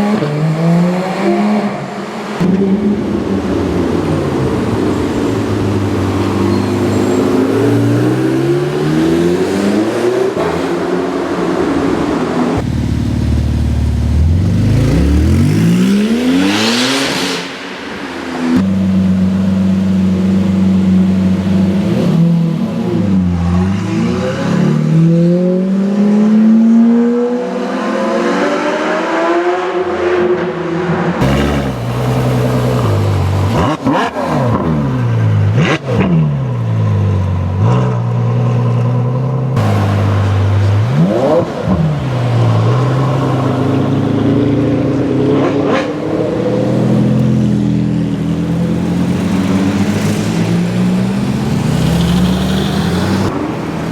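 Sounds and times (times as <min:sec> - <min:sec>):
car accelerating: 0:00.0 - 0:53.9
car engine idling: 0:12.6 - 0:15.4.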